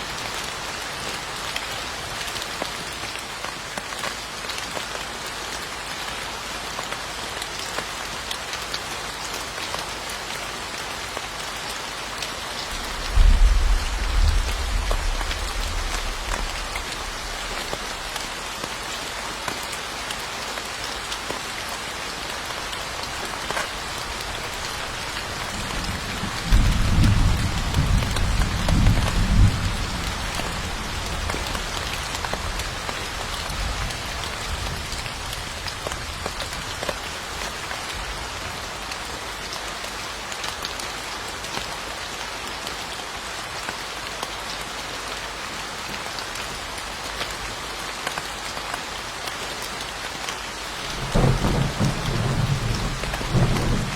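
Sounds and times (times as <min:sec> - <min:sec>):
rain falling on surfaces: 0:00.0 - 0:53.9
thunder rumbling: 0:12.7 - 0:18.1, 0:50.9 - 0:53.9.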